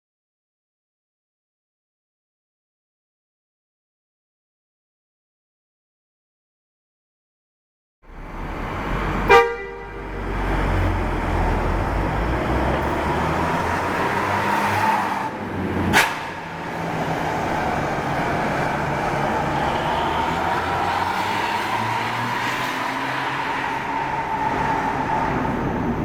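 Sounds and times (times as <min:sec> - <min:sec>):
horn toot: 0:09.3 - 0:10.2.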